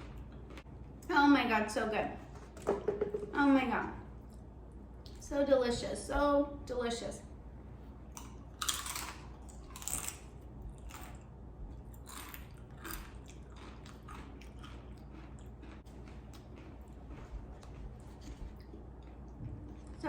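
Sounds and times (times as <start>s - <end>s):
chips crunching while chewing: 8.2s - 19.2s.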